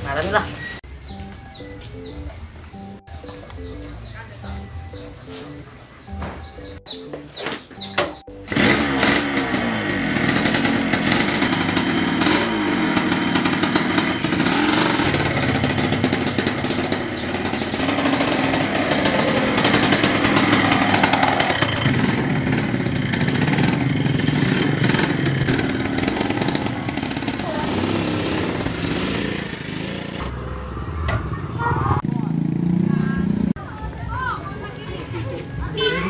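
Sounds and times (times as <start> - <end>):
motorcycle engine revving: 1.5 - 33.6
motorcycle kick-started: 6.0 - 30.3.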